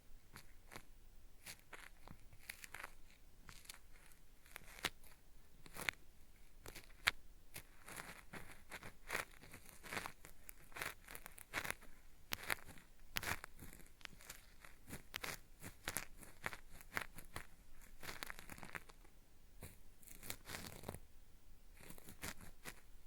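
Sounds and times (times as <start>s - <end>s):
cotton swab scratching microphone: 0.3s - 21.0s, 21.7s - 22.9s.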